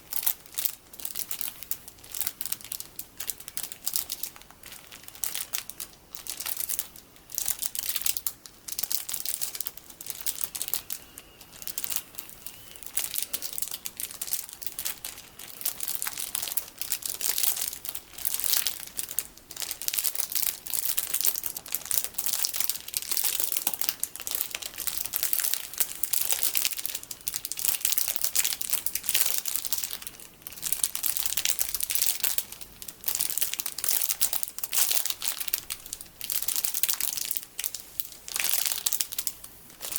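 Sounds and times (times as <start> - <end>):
plastic packaging crinkling: 0.0 - 39.9.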